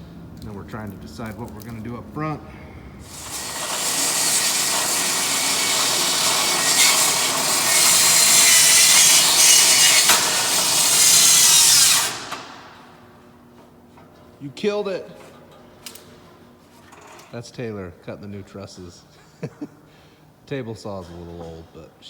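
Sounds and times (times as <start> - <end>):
table saw cutting wood: 3.0 - 12.9.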